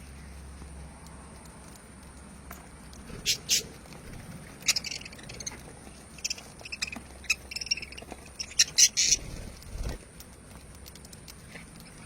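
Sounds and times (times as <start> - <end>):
lovebirds chirping and squawking: 2.9 - 10.0, 11.4 - 12.0.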